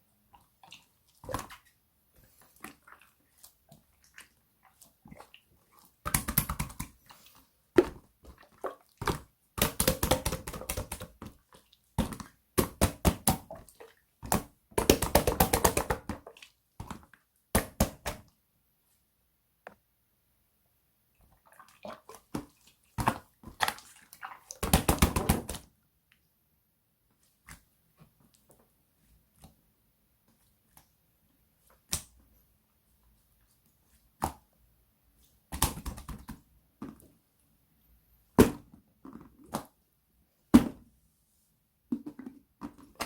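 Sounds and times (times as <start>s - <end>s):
slime squelching by hand: 0.2s - 17.3s, 21.2s - 25.6s.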